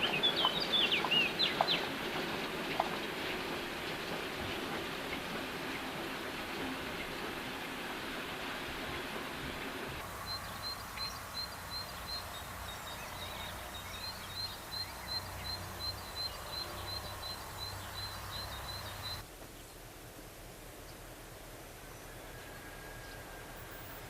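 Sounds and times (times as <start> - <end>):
small bird chirping: 0.0 - 1.9, 10.2 - 19.8
faint outdoor background: 0.0 - 24.0.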